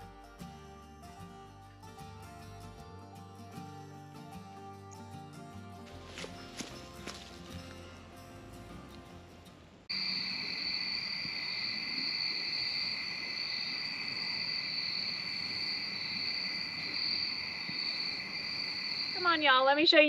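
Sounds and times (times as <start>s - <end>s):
insects trilling: 9.9s - 19.6s.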